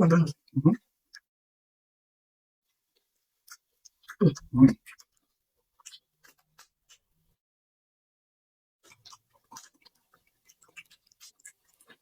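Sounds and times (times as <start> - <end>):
people chewing: 2.9 - 7.1, 8.8 - 12.0.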